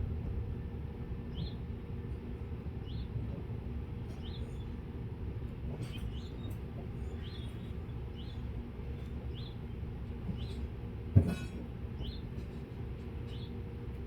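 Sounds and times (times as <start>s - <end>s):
steady low rumble: 0.0s - 3.6s.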